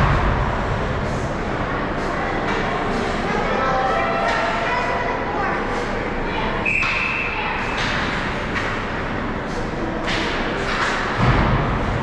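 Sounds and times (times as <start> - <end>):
heavy low thud: 0.0 - 1.1
hall background noise: 0.0 - 12.0.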